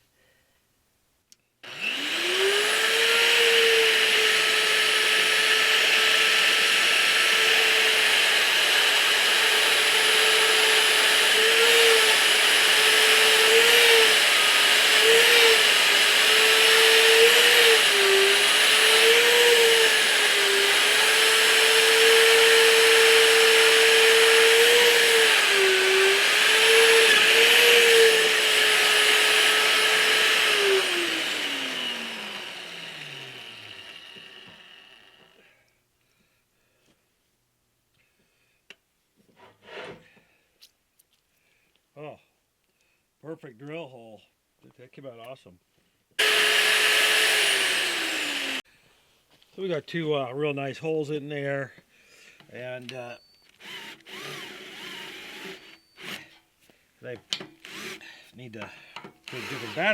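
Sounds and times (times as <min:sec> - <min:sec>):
magnetic drill whining through steel: 0:01.6 - 0:35.5, 0:46.2 - 0:48.6, 0:53.1 - 0:56.4, 0:57.6 - 0:58.1, 0:59.2 - 0:59.9.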